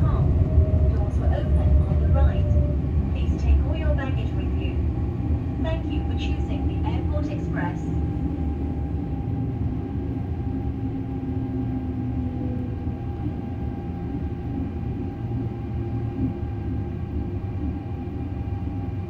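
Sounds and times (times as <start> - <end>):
faint steady whine: 0.0 - 19.0
train wheels rumbling: 0.0 - 19.0.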